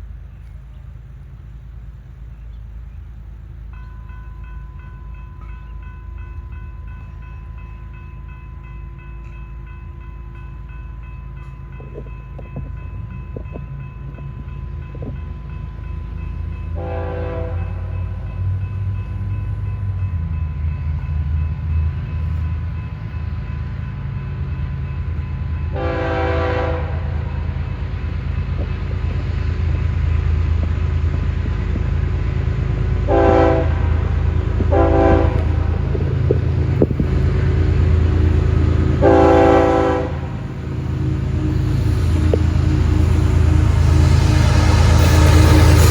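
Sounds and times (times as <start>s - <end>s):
diesel locomotives rumbling past: 0.0s - 45.9s
locomotive air horn blasts: 16.8s - 17.9s, 25.7s - 27.4s, 33.0s - 35.8s, 37.1s - 45.9s.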